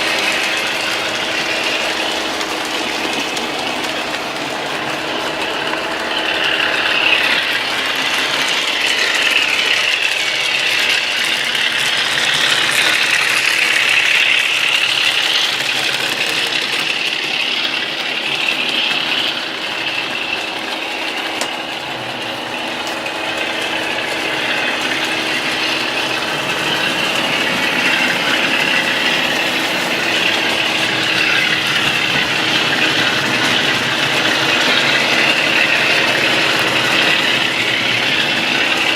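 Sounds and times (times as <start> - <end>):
model train motor whine: 0.0 - 38.9
wheels on track: 0.0 - 38.9.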